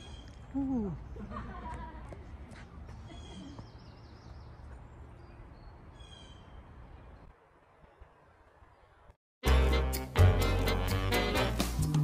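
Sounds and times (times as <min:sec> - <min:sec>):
birds chirping: 0:00.0 - 0:01.8, 0:02.7 - 0:09.2.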